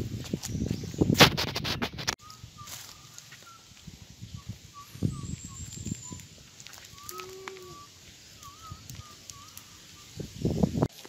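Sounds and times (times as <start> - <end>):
bird calling thin notes: 2.2 - 10.3.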